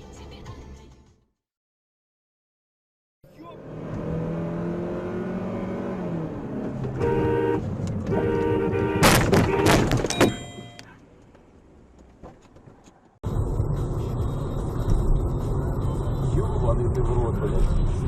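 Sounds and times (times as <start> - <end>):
traffic noise: 3.3 - 18.0
car horn blaring: 6.9 - 10.8
loud crash impacts: 9.0 - 10.1.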